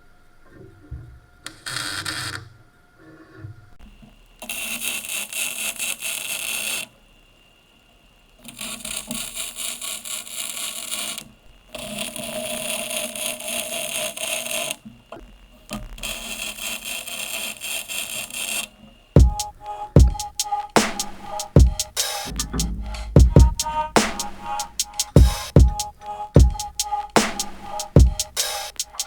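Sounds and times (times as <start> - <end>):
steady whine: 19.2 - 29.0.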